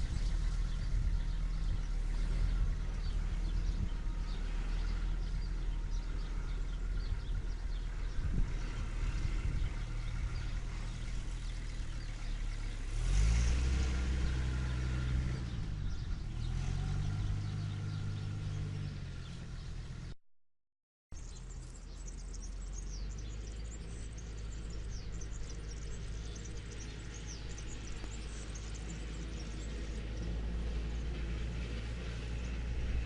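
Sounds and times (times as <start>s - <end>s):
tractor engine revving: 0.0s - 20.1s.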